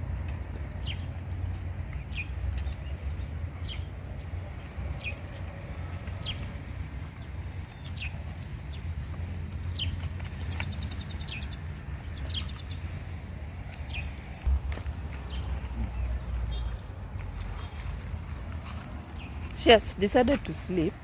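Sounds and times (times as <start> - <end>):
bird chirping: 7.2 - 13.0
low rumble: 12.7 - 19.5.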